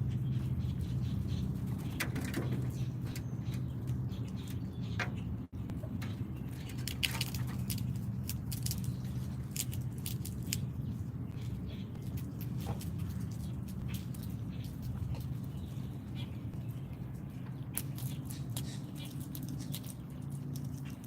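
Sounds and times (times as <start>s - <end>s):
birds tapping at feeder: 0.0s - 9.8s
low outdoor rumble: 0.0s - 21.0s.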